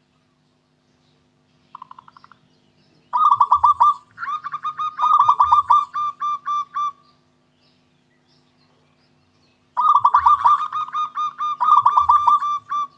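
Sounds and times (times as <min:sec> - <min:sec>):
dove cooing: 0:03.1 - 0:07.0, 0:09.8 - 0:12.9.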